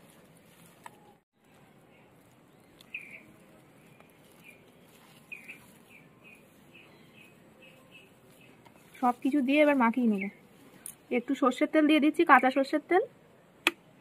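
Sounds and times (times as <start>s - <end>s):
bird chirping faintly: 1.0s - 9.4s.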